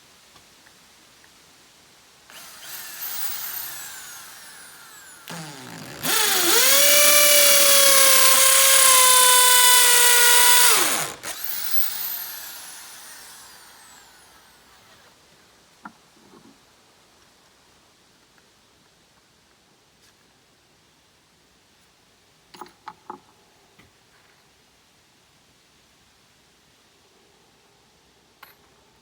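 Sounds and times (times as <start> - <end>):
whirring with falling pitch: 2.3 - 14.8
small electric motor running: 2.3 - 15.0.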